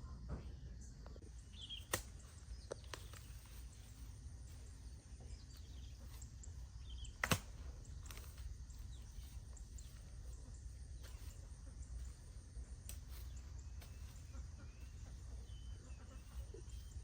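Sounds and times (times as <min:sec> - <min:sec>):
faint bird chirps: 0:00.0 - 0:17.0
sharp knocks or cracks: 0:07.2 - 0:07.6.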